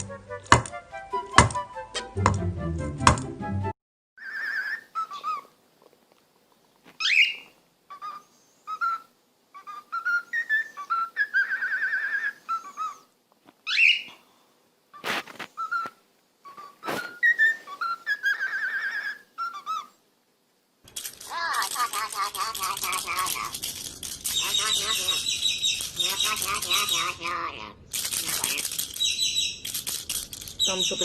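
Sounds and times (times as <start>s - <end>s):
parrot whistling a tune: 8.7s - 13.0s, 15.6s - 15.9s, 16.6s - 19.9s, 24.4s - 27.1s, 29.0s - 29.6s
sharp clicks: 20.8s - 27.1s, 27.9s - 31.0s.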